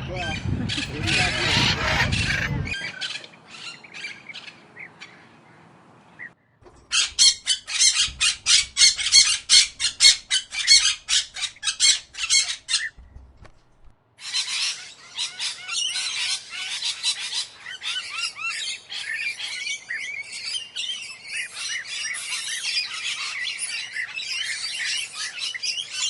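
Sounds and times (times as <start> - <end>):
parrot harsh squawks: 0.7 - 4.5
parrot chirps: 6.9 - 13.0.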